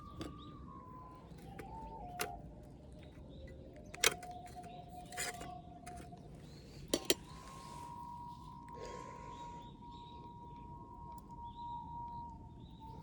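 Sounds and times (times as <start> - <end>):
slow recorder music: 0.0 - 2.6, 7.3 - 13.0.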